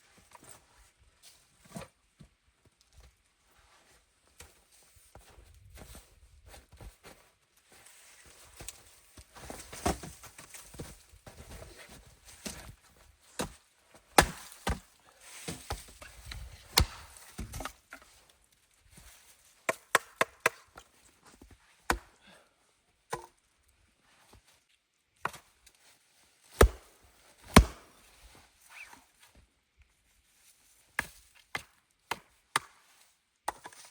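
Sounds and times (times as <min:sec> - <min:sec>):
wood being chopped: 0:14.2 - 0:14.9, 0:16.7 - 0:17.7, 0:19.7 - 0:20.6, 0:21.9 - 0:22.1, 0:26.6 - 0:28.0, 0:31.0 - 0:32.8.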